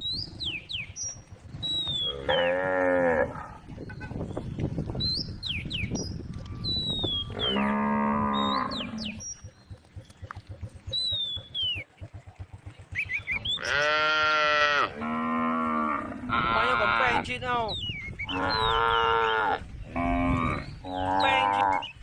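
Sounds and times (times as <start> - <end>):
small birds chirping: 0.0 - 14.5, 16.6 - 22.0
cow mooing: 2.0 - 3.6, 7.3 - 9.2, 13.6 - 17.2, 18.3 - 21.9.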